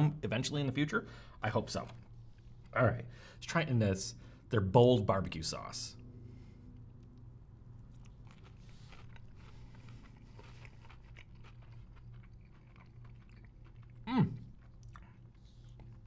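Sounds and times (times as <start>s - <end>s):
person chewing crunchy food: 7.7s - 16.0s.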